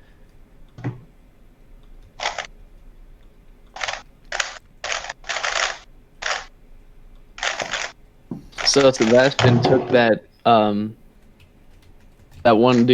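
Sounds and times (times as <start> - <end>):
puzzle cube rapid clicking: 2.2 - 2.5, 3.7 - 6.5, 7.4 - 8.0, 8.6 - 9.5, 11.2 - 12.9.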